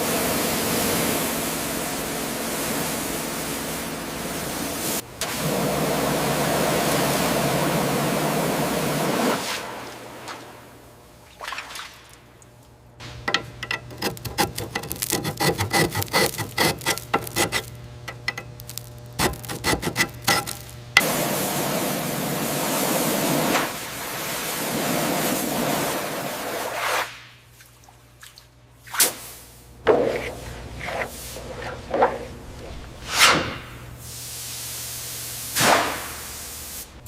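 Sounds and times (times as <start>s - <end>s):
scraping on rusty surface: 13.1s - 20.8s, 29.9s - 33.8s.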